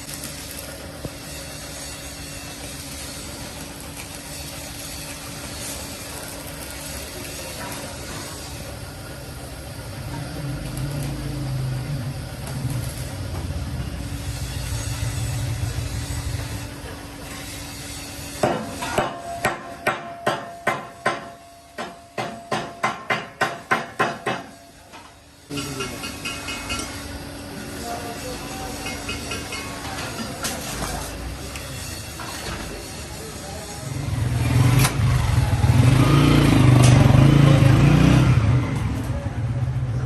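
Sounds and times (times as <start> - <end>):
engine running: 8.6 - 17.4, 33.8 - 40.0.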